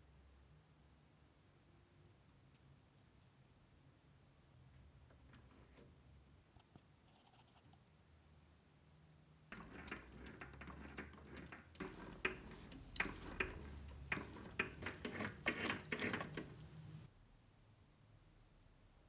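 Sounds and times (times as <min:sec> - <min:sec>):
metal parts clicking and clinking: 0:09.5 - 0:17.1.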